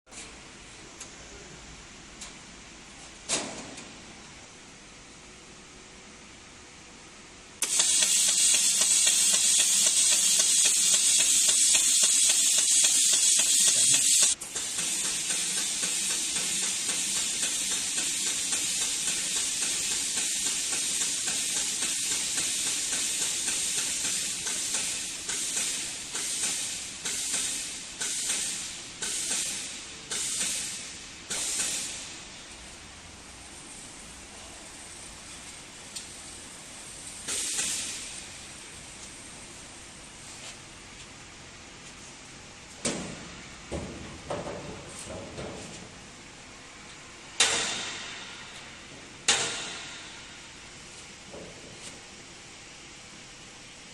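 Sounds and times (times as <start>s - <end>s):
sawmill machinery hissing rush: 7.6s - 32.2s.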